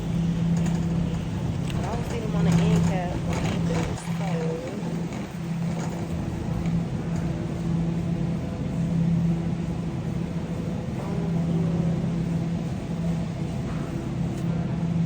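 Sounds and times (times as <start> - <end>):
shopping cart rolling: 0.0 - 7.9.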